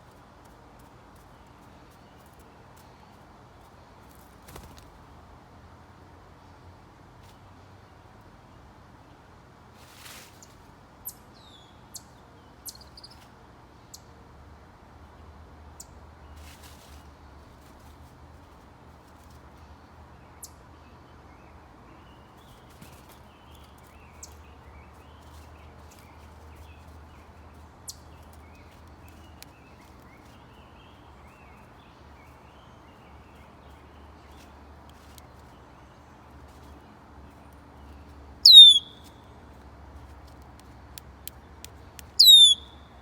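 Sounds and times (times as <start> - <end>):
bird chirp: 10.4 - 14.1, 20.2 - 39.4, 41.6 - 43.0.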